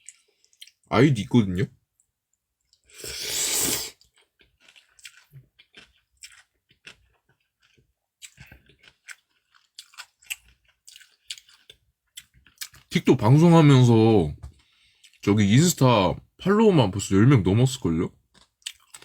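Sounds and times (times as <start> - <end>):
chewing clicks: 18.3 - 19.0.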